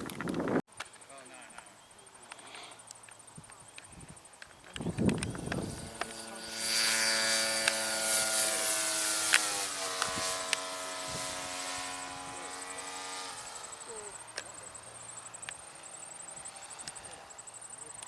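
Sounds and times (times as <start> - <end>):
sharp clicks: 2.3 - 6.2
model airplane motor whining: 4.8 - 18.0.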